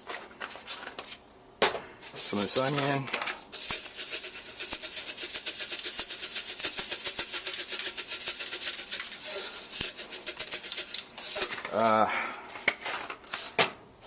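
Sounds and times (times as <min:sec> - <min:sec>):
spice container rattling shakes: 0:03.5 - 0:11.8.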